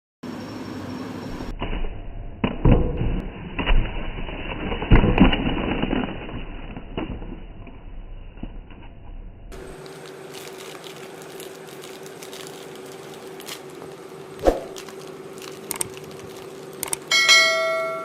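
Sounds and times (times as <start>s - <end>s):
packaging rustling: 9.6s - 17.1s.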